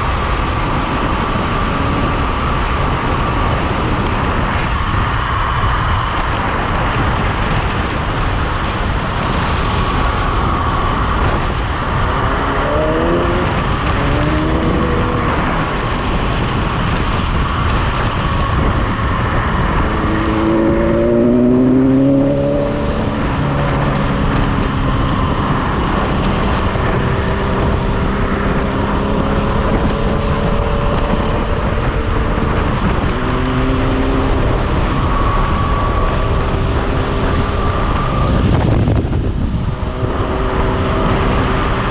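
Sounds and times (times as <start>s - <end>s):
rushing wind and road noise: 0.0s - 41.9s
vehicle engine revving: 9.2s - 41.9s.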